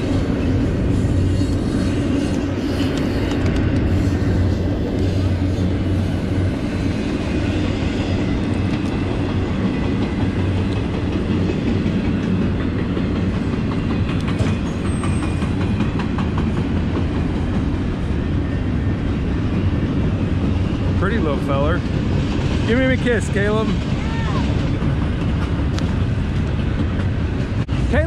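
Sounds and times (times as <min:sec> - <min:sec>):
train rumbling past: 0:00.0 - 0:28.0
wheels clattering over rail joints: 0:04.6 - 0:18.1.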